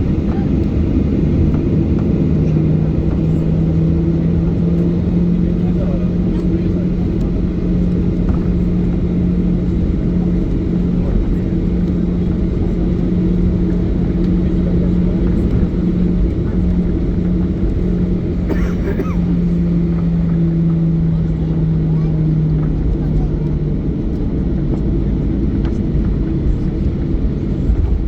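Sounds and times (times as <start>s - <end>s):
airplane cabin engine rumble: 0.0s - 28.0s.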